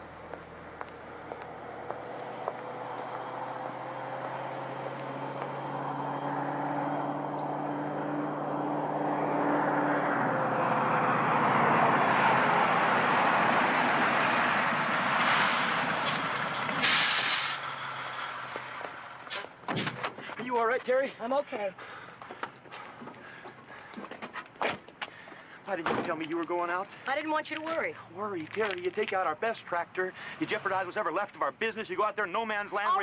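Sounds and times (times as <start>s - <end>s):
heavy truck engine: 0.0s - 20.4s
road noise: 0.0s - 33.0s
short sharp hiss: 16.8s - 17.6s.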